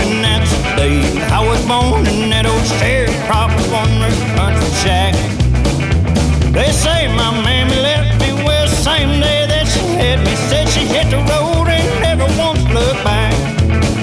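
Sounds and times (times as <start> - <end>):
country band playing: 0.0 - 14.0.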